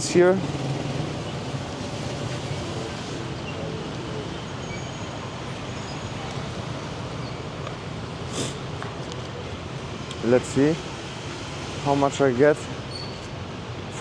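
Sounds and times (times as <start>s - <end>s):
street traffic noise: 0.0s - 14.0s
short hiss: 8.3s - 8.6s.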